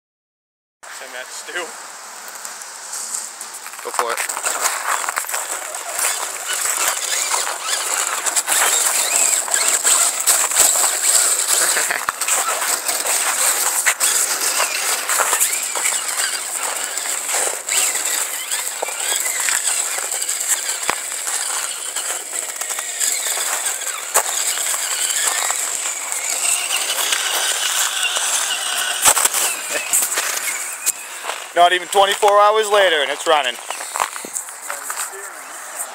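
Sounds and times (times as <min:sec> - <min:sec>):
electric motor whine: 0:04.3 - 0:35.9.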